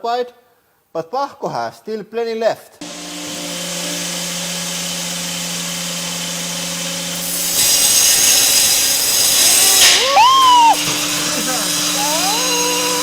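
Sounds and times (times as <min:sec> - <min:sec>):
angle grinder motor humming: 0:02.8 - 0:13.0
grinder cutting wood rasping: 0:02.8 - 0:13.0.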